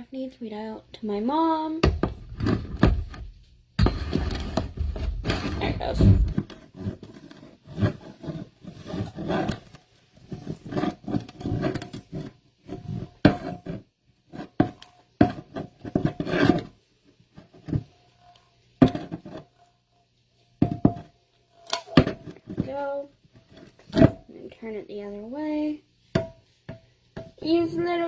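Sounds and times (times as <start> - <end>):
can opener grinding: 3.8 - 8.2.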